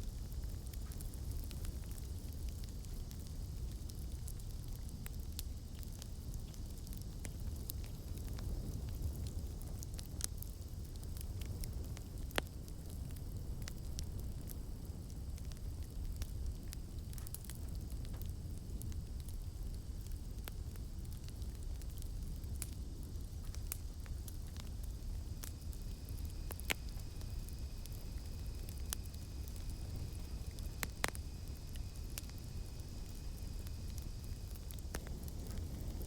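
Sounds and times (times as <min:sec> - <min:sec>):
campfire crackling and popping: 0:00.0 - 0:36.0
high insect drone: 0:23.9 - 0:36.0.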